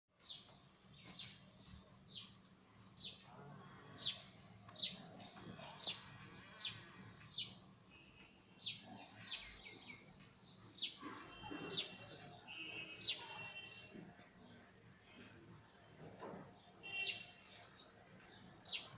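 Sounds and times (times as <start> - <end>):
sparrow chirping: 8.6 - 14.0, 16.8 - 18.9.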